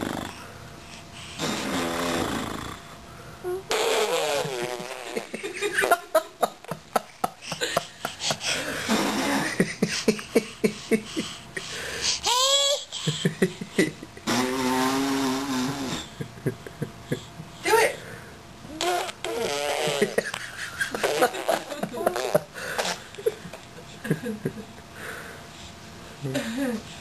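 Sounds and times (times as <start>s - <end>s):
laughter: 5.1s - 8.3s, 9.3s - 11.4s, 13.0s - 14.2s, 16.1s - 17.4s, 19.8s - 22.5s, 23.1s - 24.8s, 26.3s - 26.8s.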